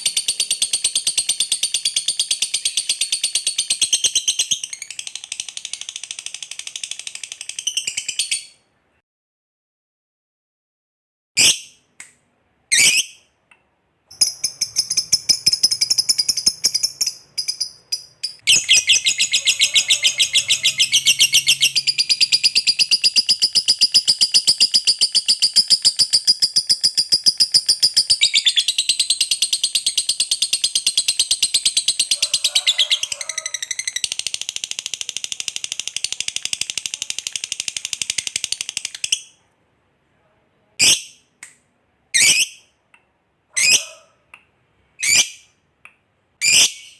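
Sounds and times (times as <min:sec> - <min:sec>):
lovebird trilling: 0:14.1 - 0:25.8.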